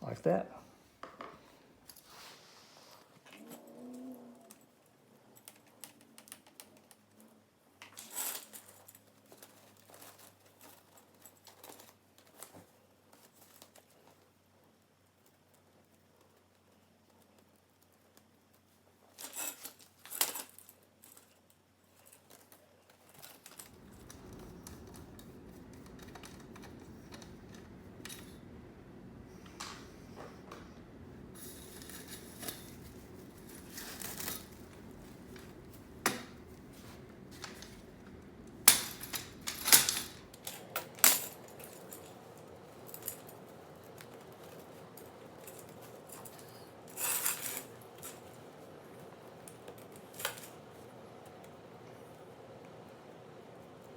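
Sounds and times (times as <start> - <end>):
low background hum: 2.8 - 53.9
hands working chair webbing: 19.0 - 51.7.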